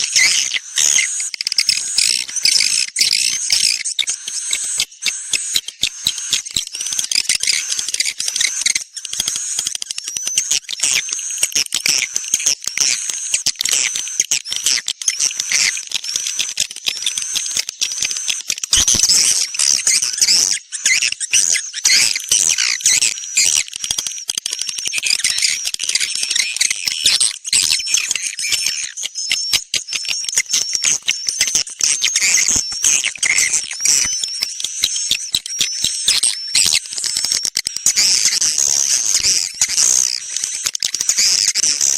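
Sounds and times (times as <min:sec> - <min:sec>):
swiftlet chirps and twitters: 0:00.0 - 0:08.8, 0:24.9 - 0:41.9.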